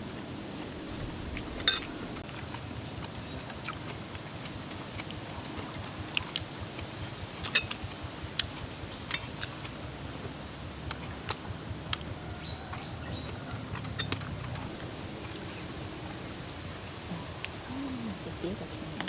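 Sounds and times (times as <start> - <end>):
person chewing with wet smacks: 1.4 - 15.4.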